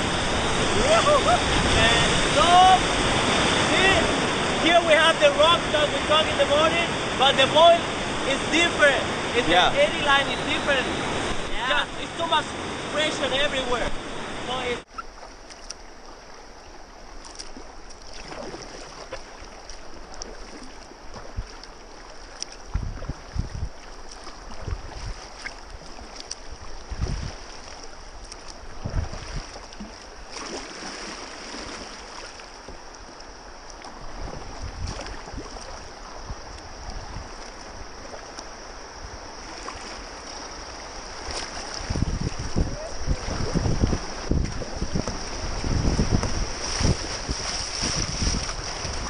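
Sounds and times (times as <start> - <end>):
rushing river water: 0.0 - 49.0.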